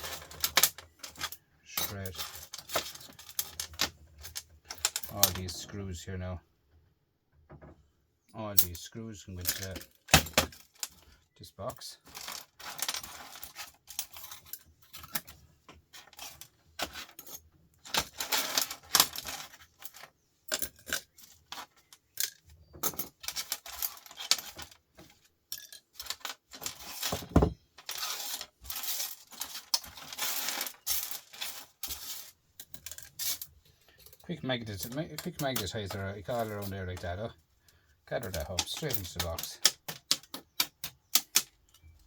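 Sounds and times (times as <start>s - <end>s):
metal screws clinking into box: 16.0s - 37.1s.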